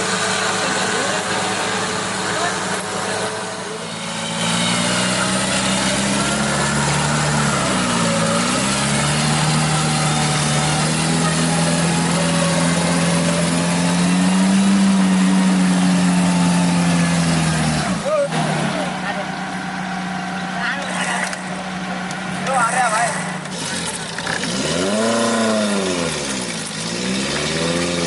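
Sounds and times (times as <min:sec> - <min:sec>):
jeep engine running at high revs: 0:00.0 - 0:28.0.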